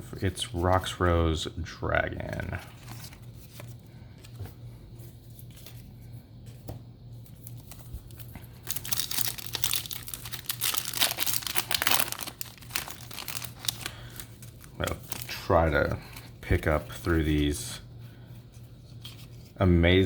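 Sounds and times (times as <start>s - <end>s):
foil wrapper crinkling and tearing: 7.4s - 17.1s.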